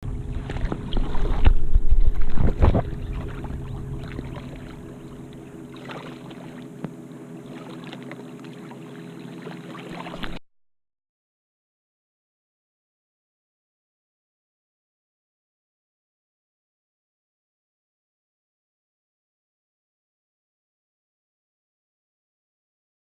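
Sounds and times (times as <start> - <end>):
muffled underwater sloshing: 0.0 - 10.4
steady hum: 0.0 - 10.4.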